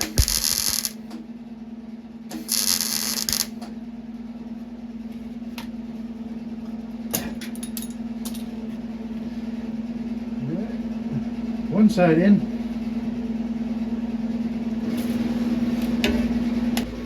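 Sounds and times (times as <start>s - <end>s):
welder crackling hiss: 0.0s - 1.0s, 2.3s - 3.6s.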